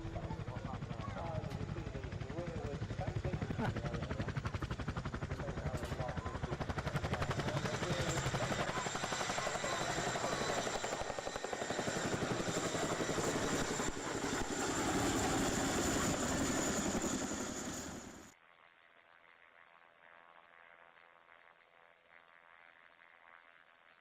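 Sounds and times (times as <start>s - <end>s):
helicopter rotor chop: 0.0s - 18.3s.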